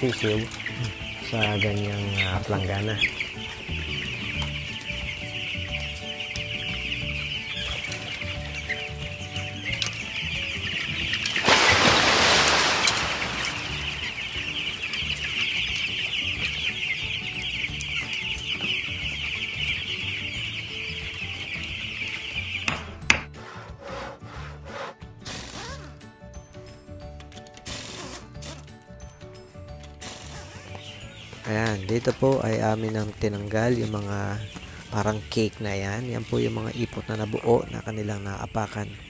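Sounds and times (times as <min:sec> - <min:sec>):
chicks peeping: 0:00.0 - 0:23.0, 0:27.6 - 0:39.0
faint background music: 0:00.0 - 0:39.0
water poured into a basin: 0:11.4 - 0:14.2.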